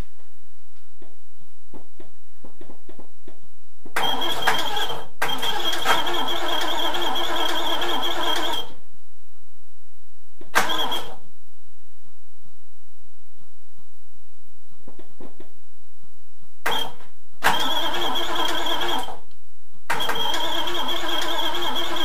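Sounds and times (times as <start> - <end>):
engine cranking on starter motor: 4.0 - 8.7, 10.6 - 11.2, 16.7 - 19.2, 19.9 - 22.0
engine short bursts: 4.0 - 8.7, 10.6 - 11.2, 16.7 - 19.2, 19.9 - 22.0
high starter whine: 4.0 - 8.8, 10.6 - 11.2, 16.7 - 19.2, 19.9 - 22.0.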